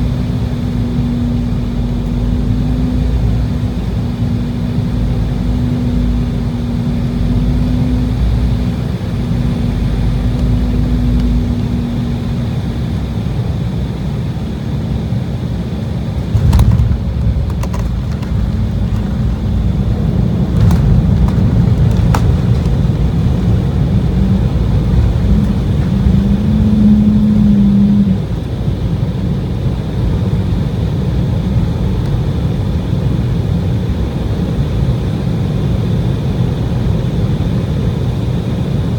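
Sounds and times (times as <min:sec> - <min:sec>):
jet engine drone: 0:00.0 - 0:38.9
low rumble: 0:16.0 - 0:28.9
sharp knocks: 0:16.3 - 0:19.9.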